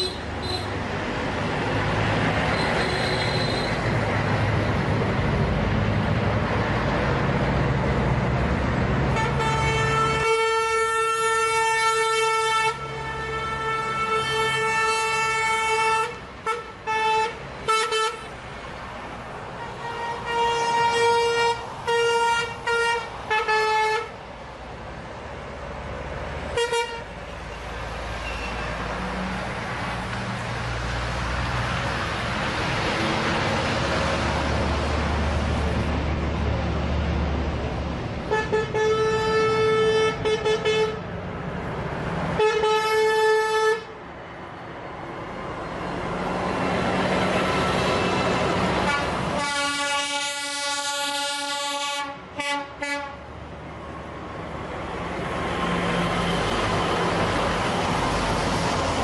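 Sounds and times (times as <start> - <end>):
truck air horn blasts: 0.0 - 0.8, 9.1 - 18.3, 19.6 - 24.1, 26.5 - 27.2, 38.3 - 41.0, 42.4 - 44.0, 48.8 - 53.2
heavy truck driving past: 0.0 - 10.2, 17.4 - 42.5, 44.0 - 49.4, 53.0 - 59.0.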